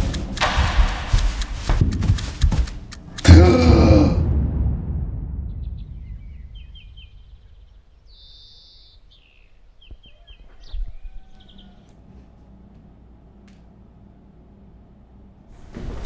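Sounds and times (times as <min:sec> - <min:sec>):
birds chirping: 0:05.4 - 0:12.1
bird trill: 0:05.5 - 0:11.9.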